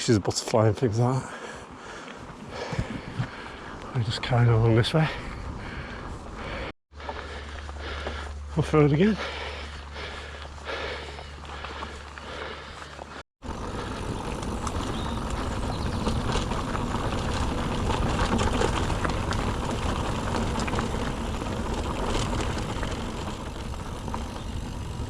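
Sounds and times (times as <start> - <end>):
bike tyres rolling on rough track: 0.0 - 25.0
bike clicks and rattles: 9.3 - 25.0.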